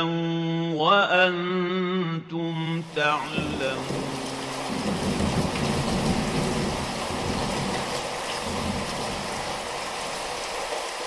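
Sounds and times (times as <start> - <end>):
rain falling: 2.7 - 11.0
low rumble: 2.8 - 9.9.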